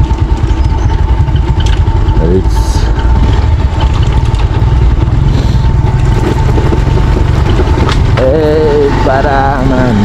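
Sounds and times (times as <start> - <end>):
motorcycle engine running: 0.0 - 10.0
man speaking: 8.2 - 10.0.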